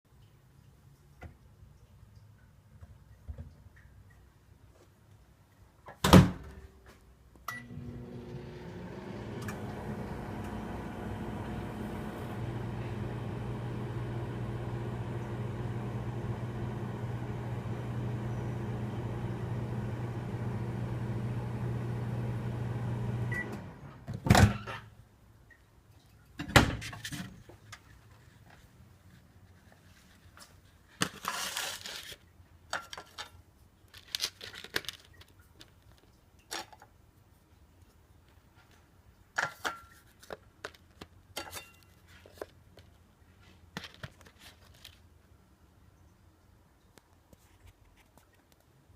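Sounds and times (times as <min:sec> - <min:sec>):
microwave oven humming: 0:07.5 - 0:24.0
rustling handling sounds: 0:26.9 - 0:45.4.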